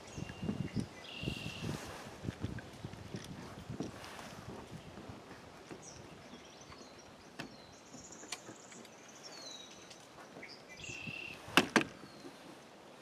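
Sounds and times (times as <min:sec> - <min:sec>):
birds whistling: 0:00.0 - 0:01.8, 0:05.8 - 0:12.4.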